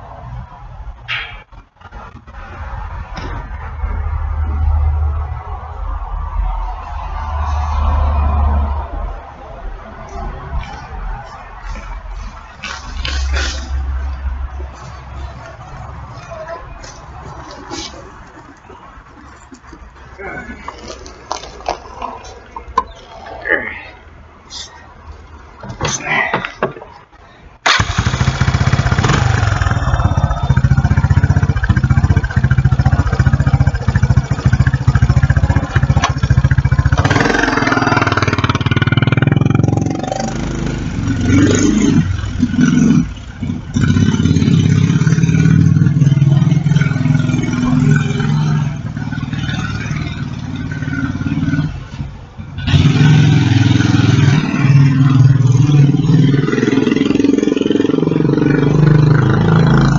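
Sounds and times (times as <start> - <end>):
quad bike engine starting and running: 27.6 - 59.9.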